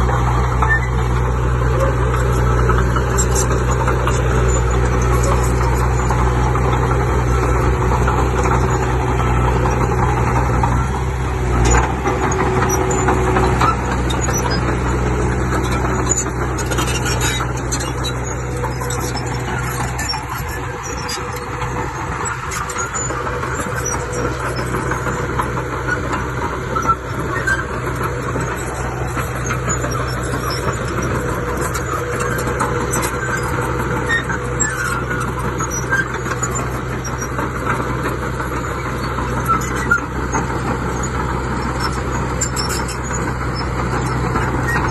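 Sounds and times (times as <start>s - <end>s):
heavy machinery diesel engine running: 0.0s - 44.9s.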